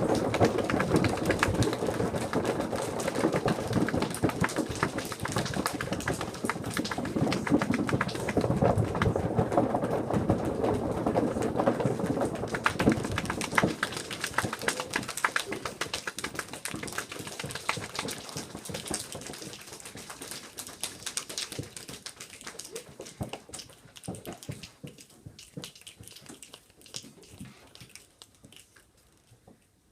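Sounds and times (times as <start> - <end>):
children tapping like rain: 0.0 - 29.9.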